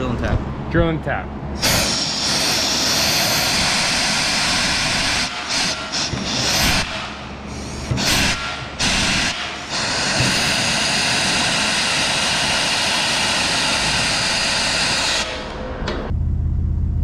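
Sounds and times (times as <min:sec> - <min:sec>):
power tool whirring on metal: 0:01.6 - 0:15.6.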